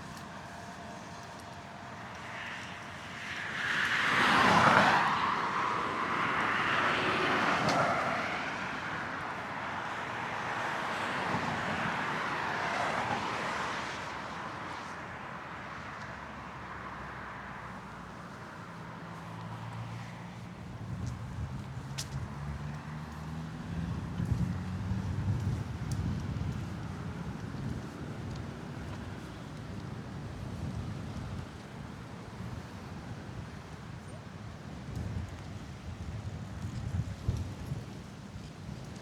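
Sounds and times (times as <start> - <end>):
road traffic passing: 0.0 - 30.9.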